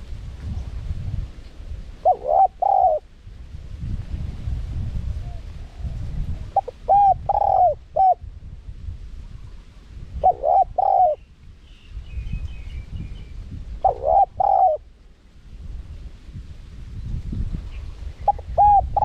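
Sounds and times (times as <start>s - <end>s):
dove cooing: 2.0s - 3.1s, 5.2s - 8.2s, 10.2s - 11.2s, 13.8s - 14.9s, 18.2s - 19.0s.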